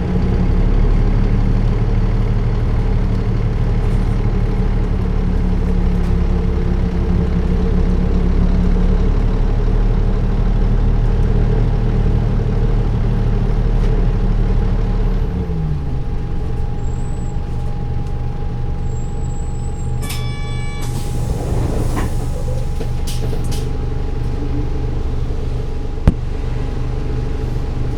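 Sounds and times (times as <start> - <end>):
diesel bus engine running: 0.0 - 27.9
brief high-pitched tone: 20.0 - 20.9.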